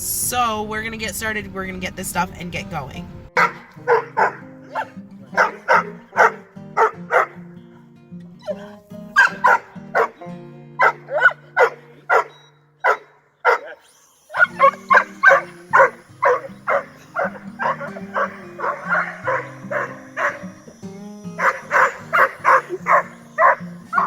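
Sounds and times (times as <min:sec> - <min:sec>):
background music with low notes: 0:00.0 - 0:13.1, 0:14.5 - 0:24.0
dog barking and yipping: 0:03.3 - 0:07.5, 0:08.4 - 0:10.2, 0:10.8 - 0:24.0.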